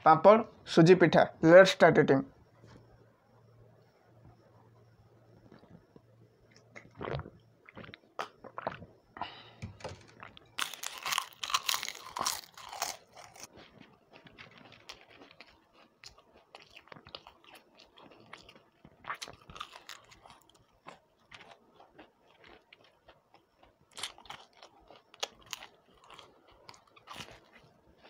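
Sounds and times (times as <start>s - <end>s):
chewing and crunching snacks: 9.9s - 28.0s.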